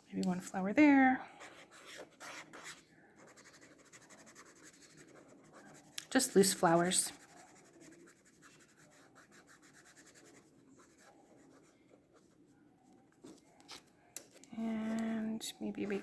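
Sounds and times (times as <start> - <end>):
paint marker scratching on paper: 1.3 - 12.4.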